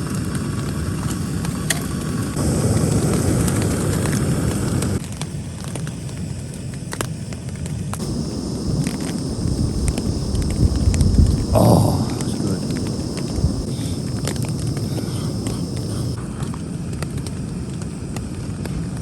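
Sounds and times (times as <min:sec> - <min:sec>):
rain tapping on tent: 0:00.0 - 0:19.0
storm wind rushing: 0:02.2 - 0:05.0, 0:08.0 - 0:16.2.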